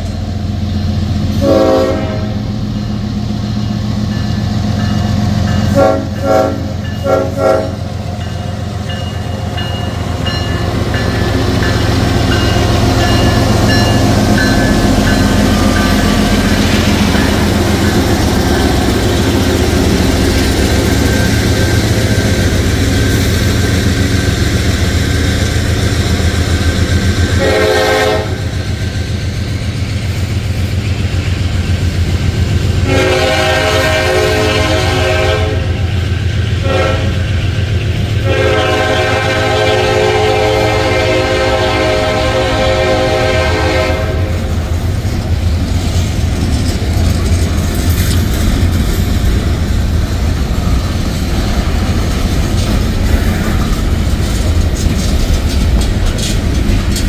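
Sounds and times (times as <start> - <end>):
locomotive rumble: 0.0 - 57.0
distant train horn: 1.3 - 2.8, 4.7 - 23.1, 27.2 - 28.6, 32.7 - 37.4, 38.1 - 44.6
train wheels clacking: 2.7 - 42.1, 43.4 - 57.0.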